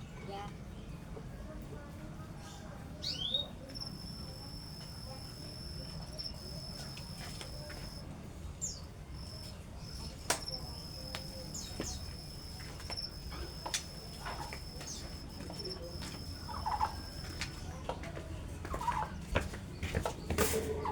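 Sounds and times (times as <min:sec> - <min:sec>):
cricket trilling: 0:03.2 - 0:08.0, 0:08.6 - 0:17.5
low hum: 0:09.1 - 0:17.4
sharp clicks: 0:09.2 - 0:17.4.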